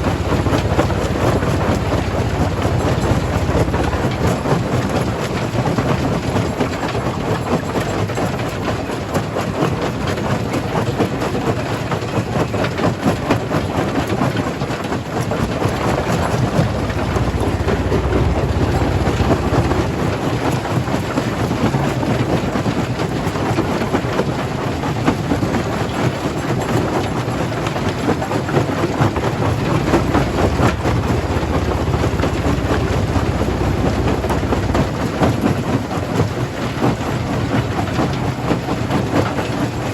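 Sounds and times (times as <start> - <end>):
jaw crusher rumble: 0.0 - 7.0, 15.0 - 23.4, 26.7 - 39.9.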